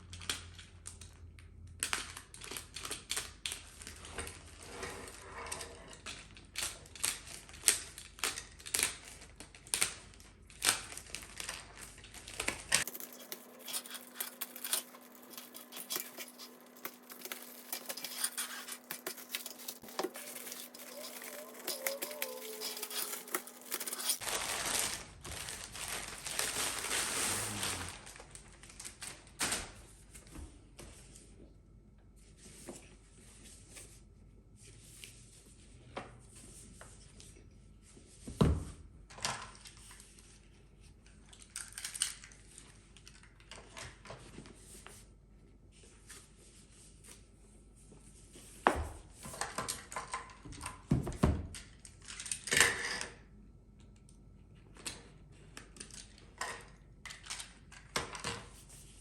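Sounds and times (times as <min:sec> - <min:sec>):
packaging rustling: 0:10.8 - 0:29.5.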